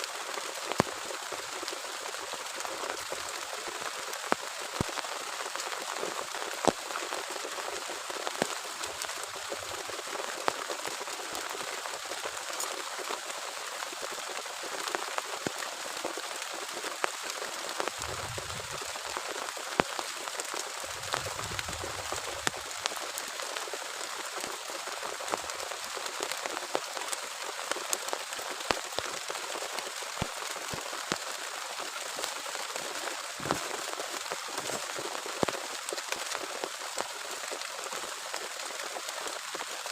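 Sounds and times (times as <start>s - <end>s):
heavy rain: 0.0s - 39.9s
raindrops tapping on surface: 0.1s - 39.9s
short low rumbles: 18.0s - 18.8s.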